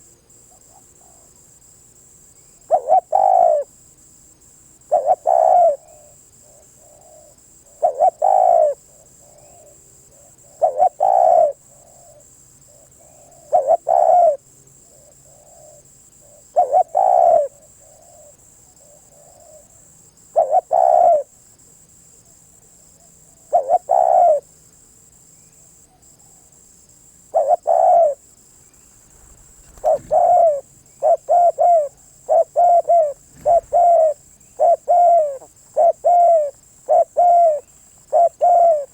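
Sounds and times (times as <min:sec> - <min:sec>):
dove cooing: 0:02.7 - 0:03.7, 0:04.9 - 0:12.2, 0:13.0 - 0:14.4, 0:15.2 - 0:19.7, 0:20.4 - 0:21.3, 0:23.3 - 0:24.4, 0:27.3 - 0:28.2, 0:28.8 - 0:38.9.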